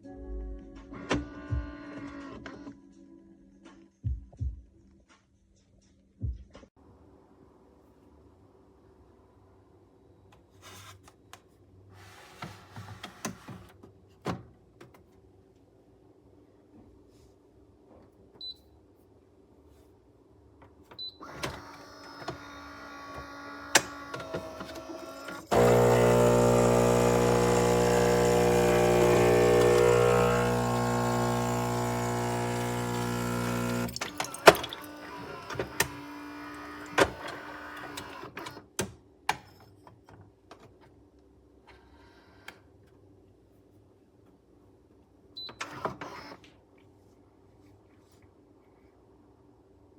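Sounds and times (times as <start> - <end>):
espresso machine whirring: 24.2 - 38.2
espresso machine loud buzzing: 24.4 - 37.2.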